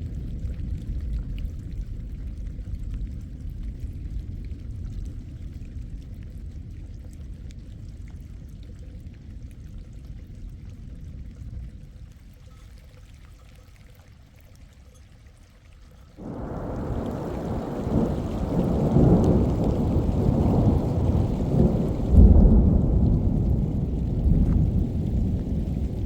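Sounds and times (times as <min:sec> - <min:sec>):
rain and running water: 0:00.0 - 0:26.0
heavy rain burst: 0:16.2 - 0:26.0
thunder: 0:16.2 - 0:26.0.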